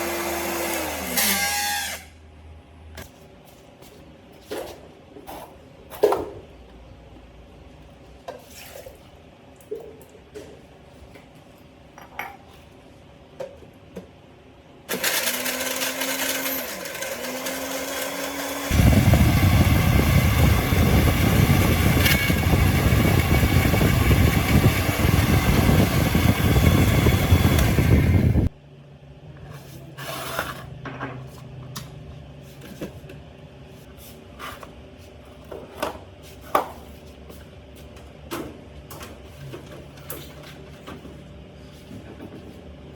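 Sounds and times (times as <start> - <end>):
blender motor whining and churning: 0.0 - 2.0, 14.9 - 28.5.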